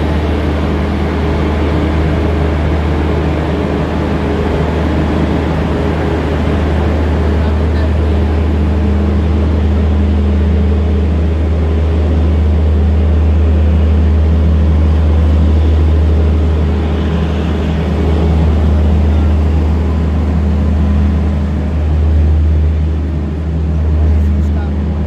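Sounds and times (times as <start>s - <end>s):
locomotive low hum: 0.0s - 25.0s
train coaches rumbling on rails: 0.0s - 25.0s.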